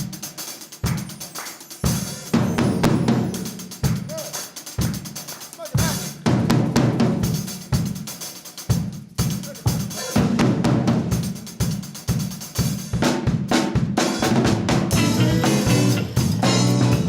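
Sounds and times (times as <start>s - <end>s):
band playing: 0.0s - 7.6s, 13.5s - 17.0s
drum kit groove: 0.0s - 17.0s.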